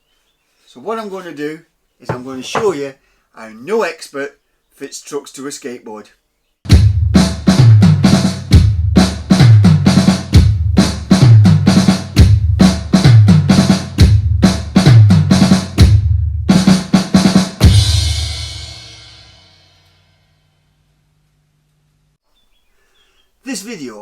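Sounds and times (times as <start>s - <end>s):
bass drum and snare beat: 6.7s - 18.9s.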